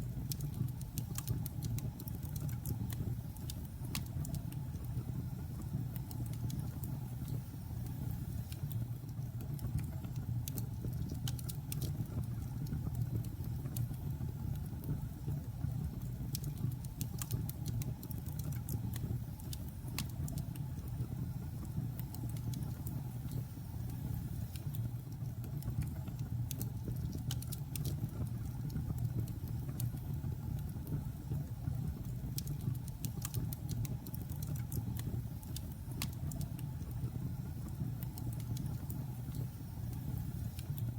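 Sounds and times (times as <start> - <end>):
low rumble of fire: 0.0 - 40.9
wood crackling and popping: 0.1 - 4.9, 8.5 - 14.9, 16.0 - 21.0, 24.5 - 31.0, 32.0 - 40.9.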